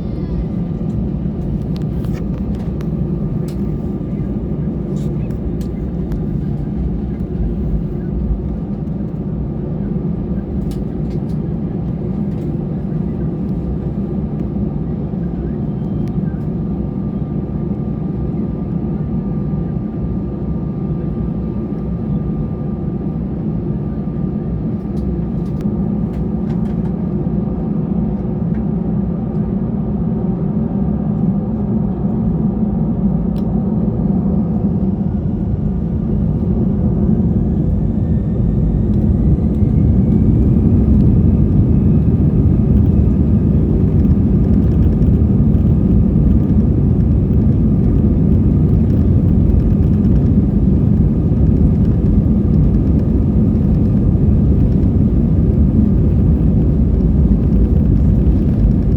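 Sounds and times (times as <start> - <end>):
jet engine rumble in cabin: 0.0 - 58.9
jet engine whine rising: 32.8 - 58.9.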